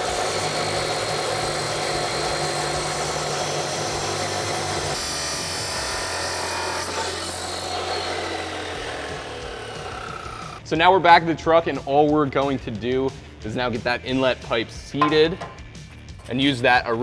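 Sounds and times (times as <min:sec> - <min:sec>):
power saw cutting steel pipe: 0:00.0 - 0:10.6.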